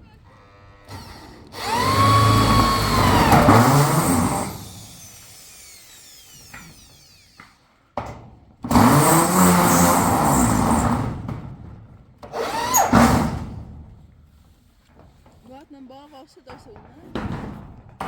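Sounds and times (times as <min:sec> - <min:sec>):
small motor running: 0:00.4 - 0:07.6.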